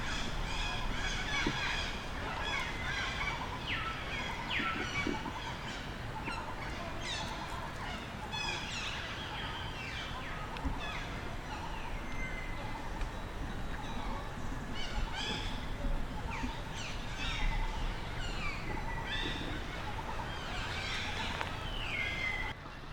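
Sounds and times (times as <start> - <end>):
monkeys calling: 0.0 - 22.9
steady background hiss: 0.0 - 22.9.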